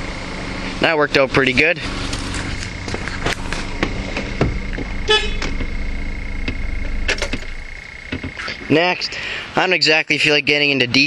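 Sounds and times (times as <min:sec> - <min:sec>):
vehicle hum: 0:00.0 - 0:11.0
short horn toot: 0:05.0 - 0:05.6.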